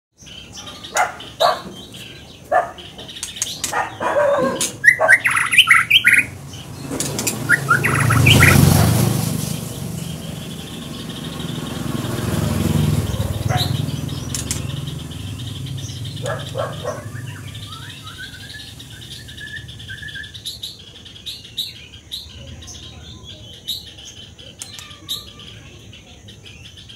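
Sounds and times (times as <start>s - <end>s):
songbird singing: 0.1s - 26.9s
broad rushing noise: 0.9s - 20.3s.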